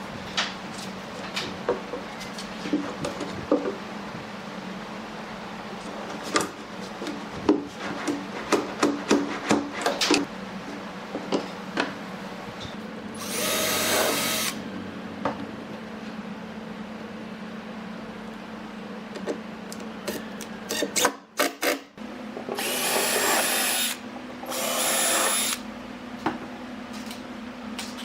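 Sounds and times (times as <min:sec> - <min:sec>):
steady low hum: 0:00.0 - 0:20.8
power tool running: 0:13.2 - 0:14.7, 0:22.5 - 0:25.7.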